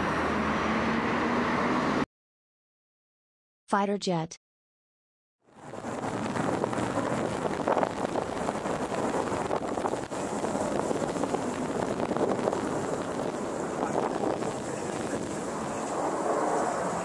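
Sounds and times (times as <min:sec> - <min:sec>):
jet engines rushing overhead: 0:00.0 - 0:02.1, 0:05.5 - 0:17.0.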